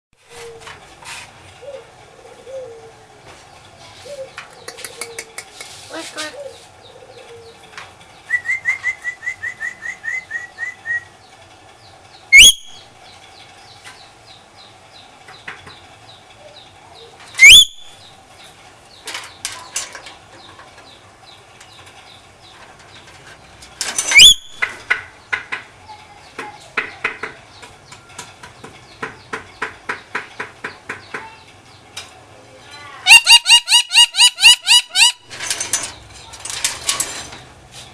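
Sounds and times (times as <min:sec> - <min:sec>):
parrot clicking chatter: 0:04.5 - 0:05.8, 0:33.0 - 0:35.3
parrot high chirps: 0:12.3 - 0:12.8, 0:17.4 - 0:18.0, 0:24.1 - 0:24.6, 0:33.0 - 0:35.3
parrot screeching: 0:12.4 - 0:12.8, 0:17.4 - 0:17.8, 0:24.1 - 0:24.6, 0:33.0 - 0:35.3.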